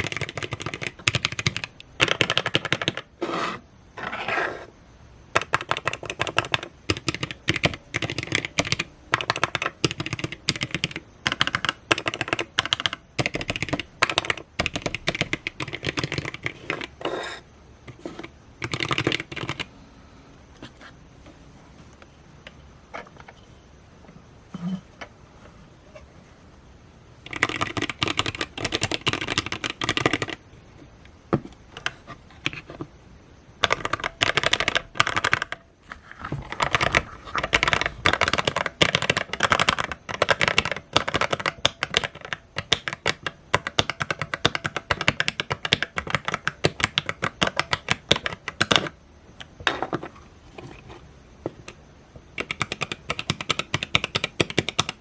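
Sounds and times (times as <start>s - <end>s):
mechanical keyboard typing: 0.0s - 3.4s, 5.3s - 19.7s, 27.2s - 30.4s, 33.6s - 35.6s, 36.4s - 49.0s, 52.4s - 55.0s.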